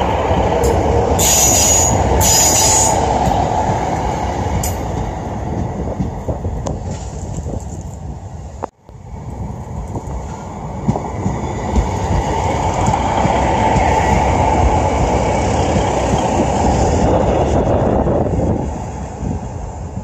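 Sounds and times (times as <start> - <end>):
diesel train passing: 0.0 - 20.0
wheels clacking over rail joints: 9.8 - 17.1.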